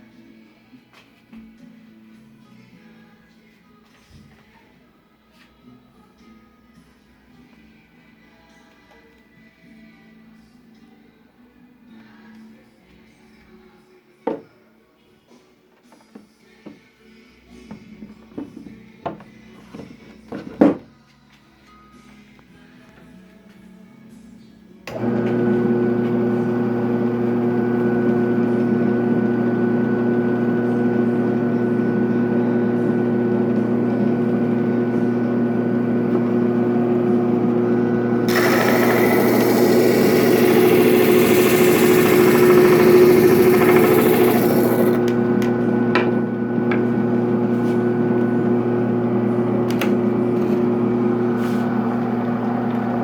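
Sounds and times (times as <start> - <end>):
drum sander motor humming: 24.9 - 53.0.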